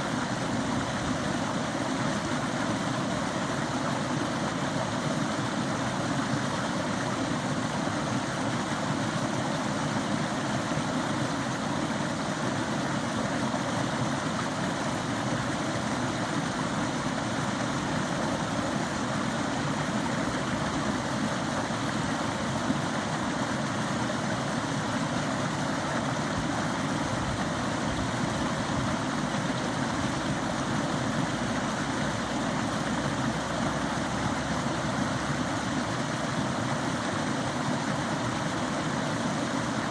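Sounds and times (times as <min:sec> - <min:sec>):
stream water running and splashing: 0:00.0 - 0:39.9.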